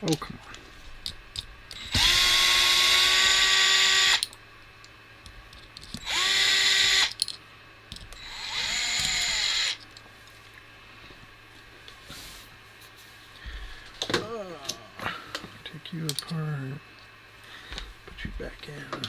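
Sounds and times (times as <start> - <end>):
electric screwdriver whining: 1.8 - 4.3, 6.0 - 7.2, 8.2 - 9.8.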